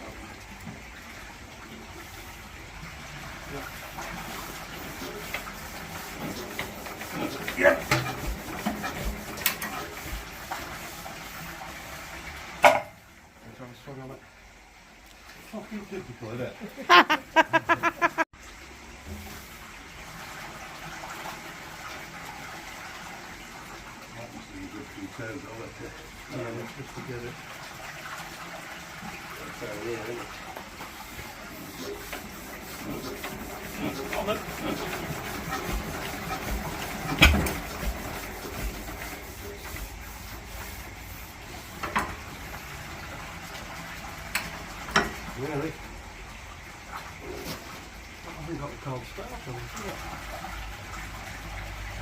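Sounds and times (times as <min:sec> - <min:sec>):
man laughing: 0:16.6 - 0:18.3.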